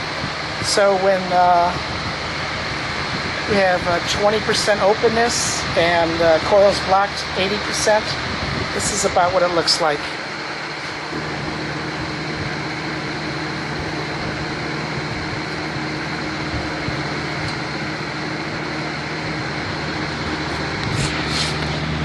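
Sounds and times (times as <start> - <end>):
box fan hum and airflow hiss: 0.0 - 22.0
brief rustles: 20.8 - 21.8.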